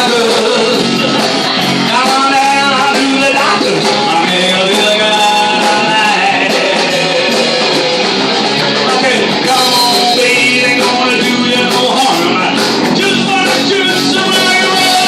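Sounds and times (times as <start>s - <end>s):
electric guitar: 0.0s - 15.0s
live rock band playing: 0.0s - 15.0s.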